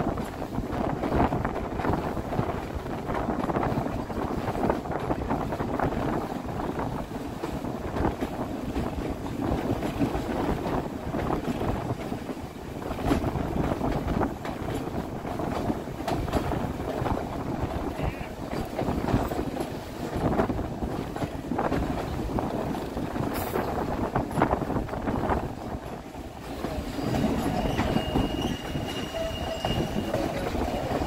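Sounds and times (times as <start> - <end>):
train rumbling on rails: 0.0 - 31.0
wind buffeting microphone: 0.0 - 31.0.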